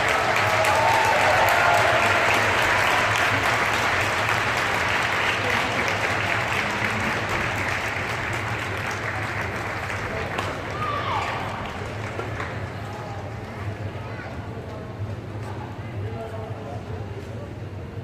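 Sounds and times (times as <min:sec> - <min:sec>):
crowd applauding: 0:00.0 - 0:13.9.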